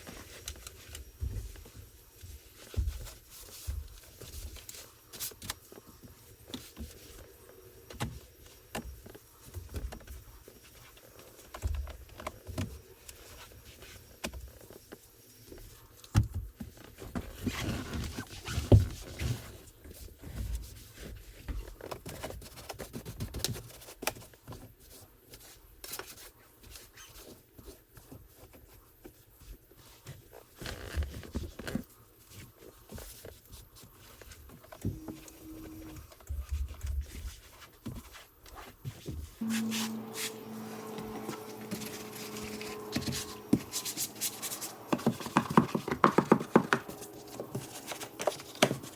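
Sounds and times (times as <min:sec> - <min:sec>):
tools and bottles knocking on car: 0:44.8 - 0:47.7.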